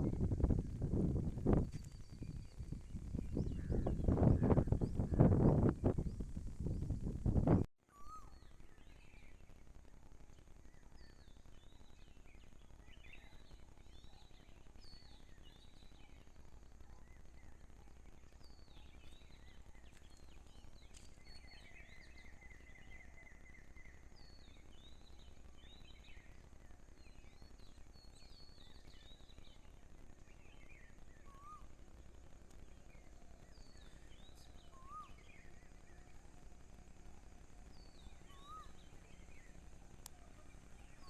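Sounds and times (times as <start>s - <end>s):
low background noise: 0.0s - 41.0s
small birds chirping: 0.0s - 41.0s
whistled bird notes: 7.9s - 9.5s, 16.9s - 31.8s, 32.6s - 41.0s.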